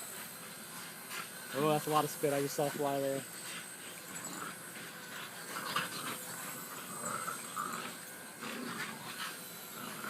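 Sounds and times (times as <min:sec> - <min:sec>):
dog grunting and snorting: 0:04.1 - 0:10.0.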